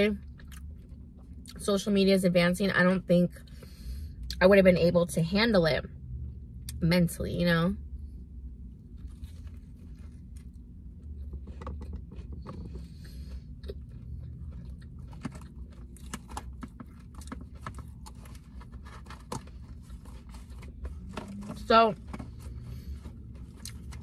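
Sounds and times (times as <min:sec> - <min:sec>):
low hum: 0:00.0 - 0:24.0
wet chewing and smacking: 0:00.2 - 0:01.6, 0:08.7 - 0:21.5, 0:22.1 - 0:24.0.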